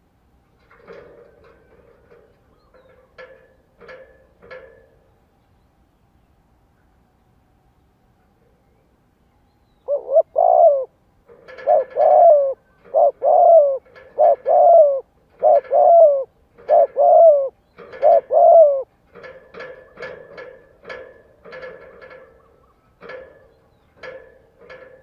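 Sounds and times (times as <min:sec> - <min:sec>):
dove cooing: 0:09.8 - 0:24.9.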